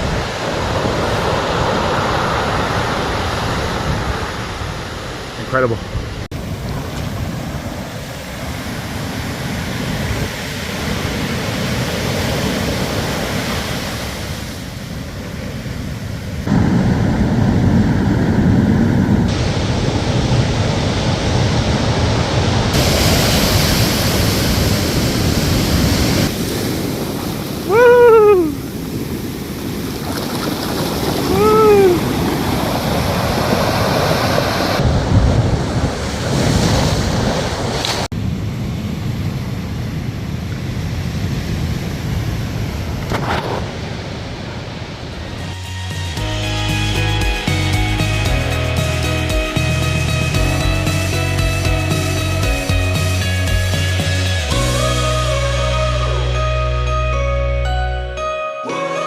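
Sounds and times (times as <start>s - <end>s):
wind buffeting microphone: 0.0s - 45.5s
ocean surf washing ashore: 0.0s - 56.4s
short falling cry: 27.6s - 28.7s, 31.2s - 32.2s.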